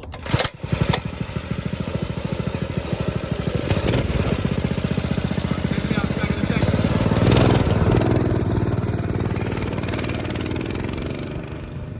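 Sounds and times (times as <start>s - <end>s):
pull-start cord: 0.0s - 2.1s
small engine running: 0.1s - 11.9s.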